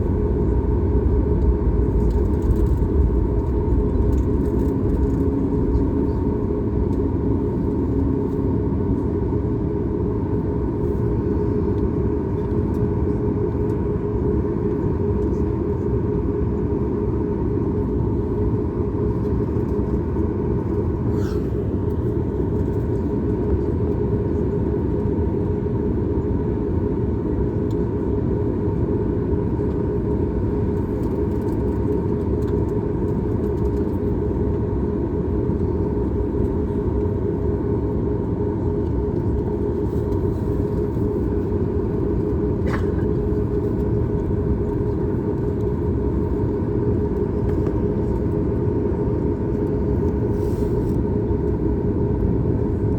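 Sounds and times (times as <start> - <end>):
steady hum: 0.0 - 14.3, 29.6 - 52.9
jet engine roar in cabin: 0.0 - 52.9.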